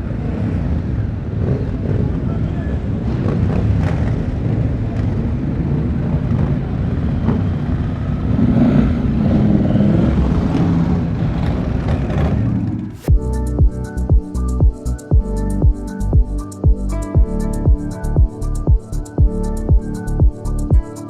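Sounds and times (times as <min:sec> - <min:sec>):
motorcycle engines rumbling: 0:00.0 - 0:13.1
electronic music with sharp beat: 0:13.1 - 0:21.0.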